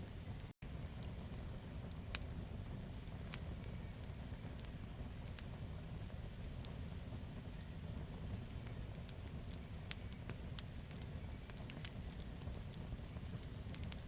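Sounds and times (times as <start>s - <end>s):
campfire crackling and popping: 0.0s - 14.0s
low fire rumble: 0.0s - 14.0s.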